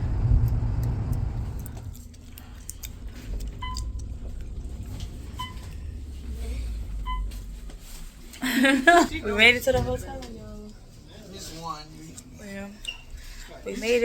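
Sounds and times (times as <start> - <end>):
car rumbling: 0.0 - 12.4
short electronic beeps: 3.6 - 4.1, 7.0 - 7.3.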